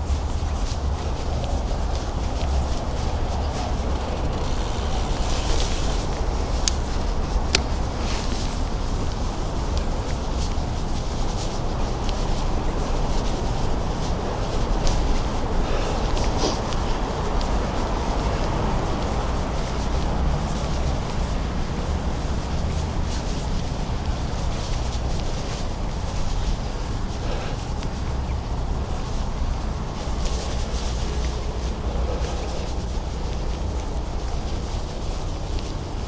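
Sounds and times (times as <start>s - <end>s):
road noise: 0.0s - 36.0s
wind rumble on microphone: 0.0s - 36.0s.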